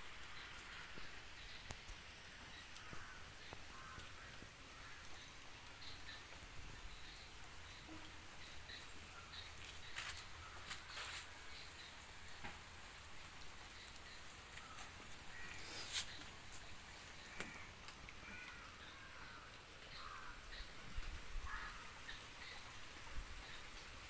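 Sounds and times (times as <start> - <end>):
faint bird caws: 2.7 - 5.4, 14.6 - 16.3, 17.1 - 22.6.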